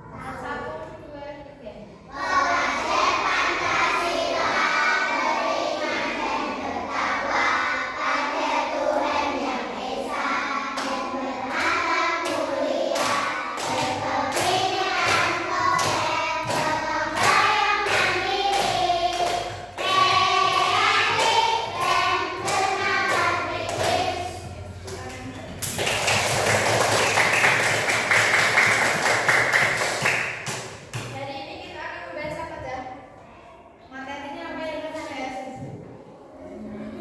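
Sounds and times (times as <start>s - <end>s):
children singing in chorus: 2.1s - 24.7s.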